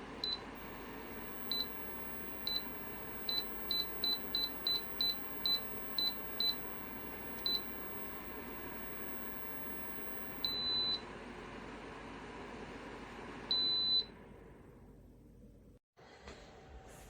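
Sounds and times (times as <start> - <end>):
heater fan whoosh: 0.6 - 10.6
short high beeps: 0.6 - 10.8.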